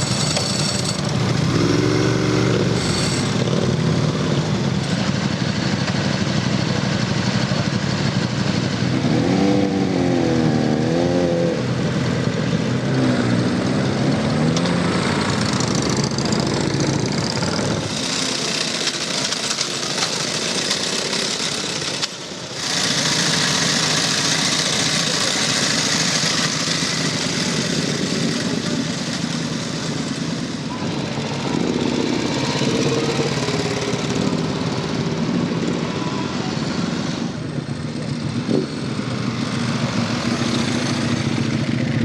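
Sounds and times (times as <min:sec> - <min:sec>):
motorcycle engines idling: 0:00.0 - 0:42.0.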